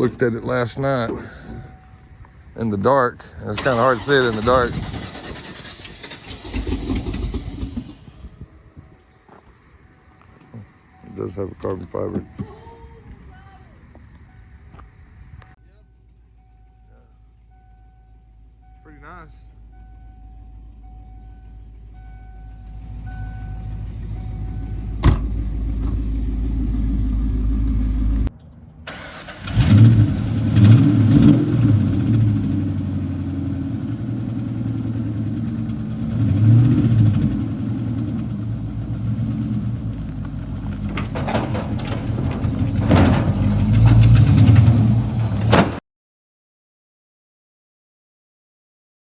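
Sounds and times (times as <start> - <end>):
car engine revving: 3.5 - 8.3, 22.7 - 28.3, 28.9 - 45.6
low hum: 19.4 - 28.6.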